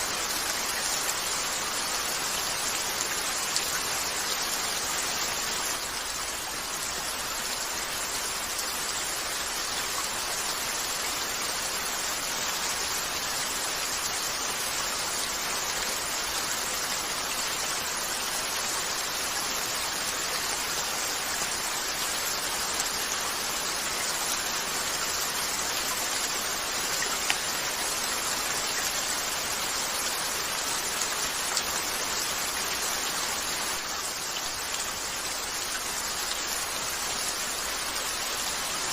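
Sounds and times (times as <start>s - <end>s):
rain falling on a window: 0.0s - 38.9s.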